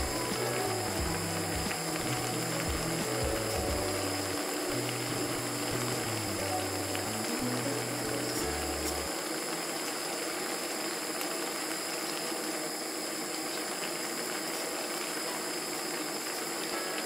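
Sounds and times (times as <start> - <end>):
gas burner hissing: 0.0 - 17.0.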